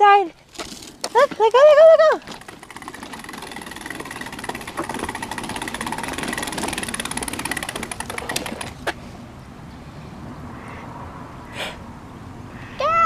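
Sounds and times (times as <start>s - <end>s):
small wheels rolling over pavement: 0.3s - 9.0s.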